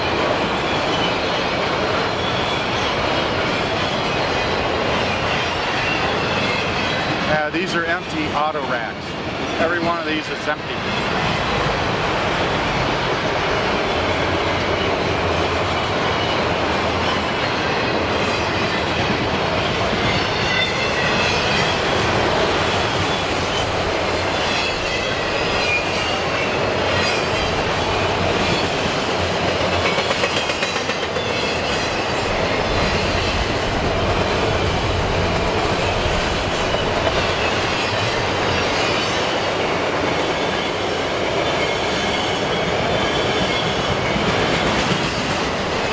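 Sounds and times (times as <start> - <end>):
freight train rumbling past: 0.0 - 45.9
high wheel squeal: 0.5 - 7.3, 20.0 - 22.2, 22.8 - 28.8.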